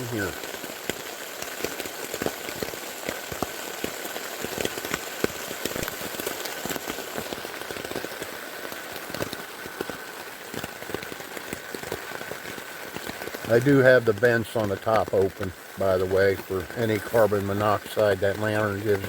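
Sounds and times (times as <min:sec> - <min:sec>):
raindrops ticking on tent fabric: 0:00.0 - 0:19.0
steady rain wash: 0:00.0 - 0:19.0.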